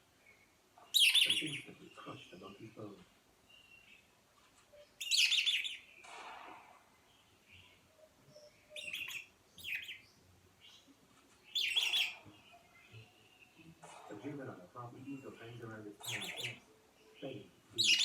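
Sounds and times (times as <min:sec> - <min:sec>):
high-pitched bird chirps: 0:00.9 - 0:01.7, 0:04.7 - 0:06.0, 0:07.5 - 0:10.9, 0:11.5 - 0:13.8, 0:16.0 - 0:18.0.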